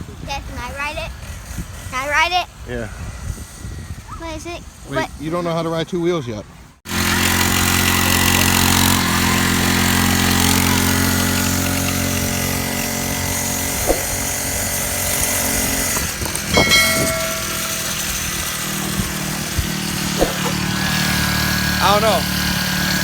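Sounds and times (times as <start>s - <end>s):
small engine idling: 6.9s - 23.0s.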